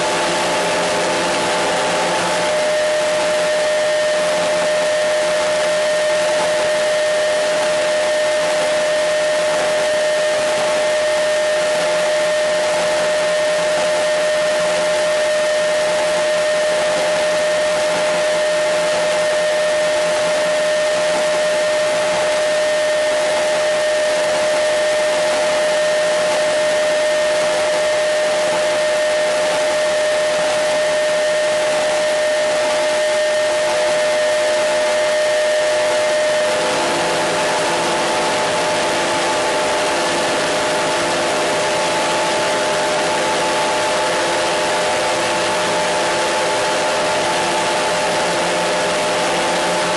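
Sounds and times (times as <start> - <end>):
radio whistling tone: 2.3 - 36.8.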